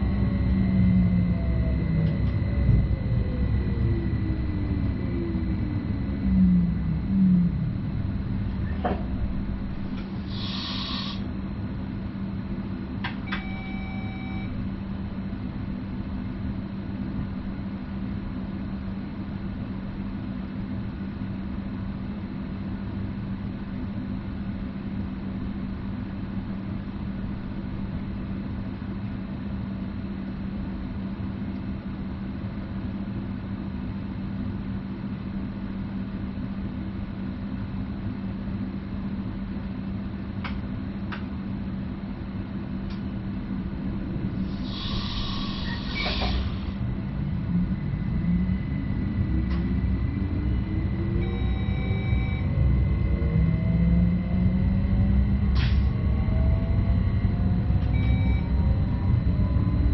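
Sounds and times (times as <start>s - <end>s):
train rumbling on track: 0.0s - 22.2s, 38.0s - 59.9s
constant low hum: 0.0s - 59.9s
short electronic beep: 13.3s - 14.6s, 58.0s - 58.6s
click: 40.4s - 41.3s, 42.9s - 43.1s, 49.5s - 49.7s.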